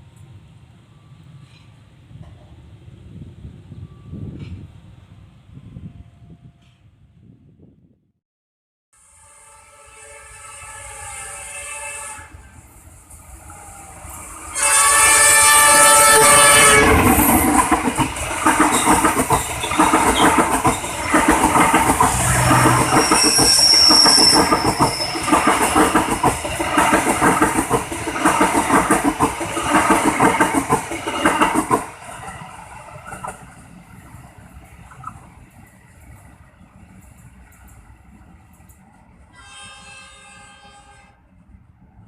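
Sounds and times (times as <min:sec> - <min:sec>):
locomotive horn: 0:09.0 - 0:12.6, 0:14.5 - 0:17.4, 0:39.3 - 0:41.2
train wheels clattering over rails: 0:15.6 - 0:33.6.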